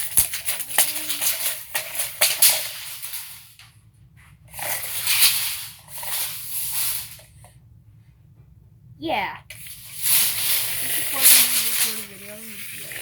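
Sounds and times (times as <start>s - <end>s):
tape measure blade rattling: 0.0s - 3.6s, 4.5s - 7.3s, 9.6s - 13.0s.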